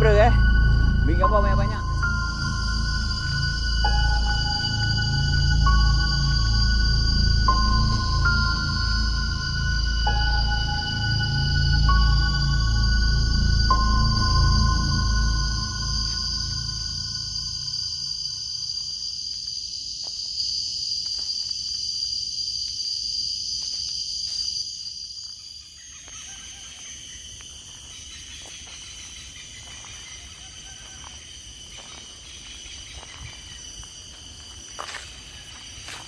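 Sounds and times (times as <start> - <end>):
low rumble: 0.0 - 18.0
insects buzzing: 0.0 - 36.0.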